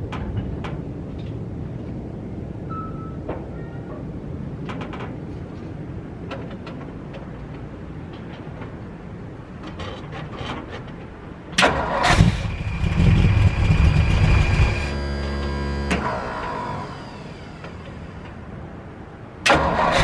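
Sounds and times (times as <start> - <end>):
car engine starting and running rough: 11.6 - 18.3, 19.4 - 20.0.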